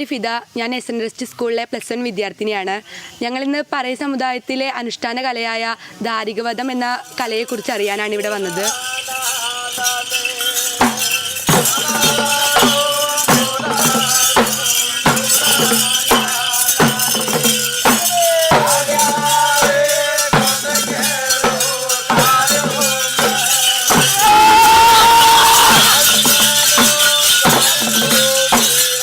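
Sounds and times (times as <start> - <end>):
jingling rattle shimmer: 6.4 - 29.0
rhythmic percussion music: 6.6 - 29.0.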